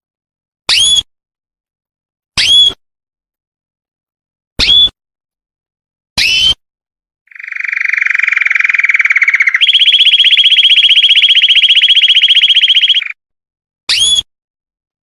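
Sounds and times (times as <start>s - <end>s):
canary singing a rolling trill: 7.3s - 13.2s.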